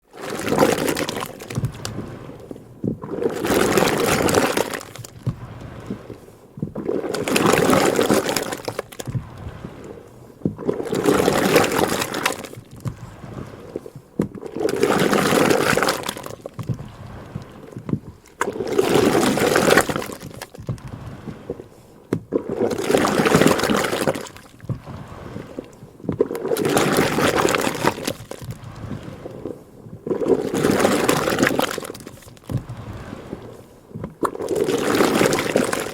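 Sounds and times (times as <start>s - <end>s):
cream sloshing in a churn: 0.0s - 35.9s.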